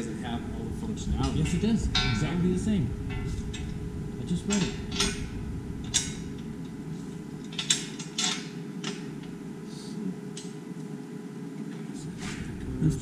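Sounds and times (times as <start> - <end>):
steady low hum: 0.0 - 13.0
metal hardware clinking: 1.2 - 2.4, 3.1 - 6.8, 7.4 - 9.3.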